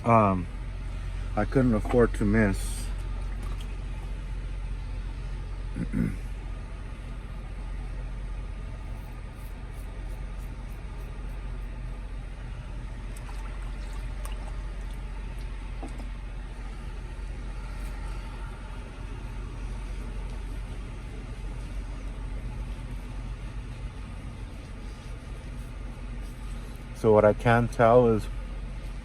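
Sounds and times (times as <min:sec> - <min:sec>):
idling truck engine hum: 0:00.0 - 0:29.0
razor scratching stubble: 0:08.8 - 0:11.5.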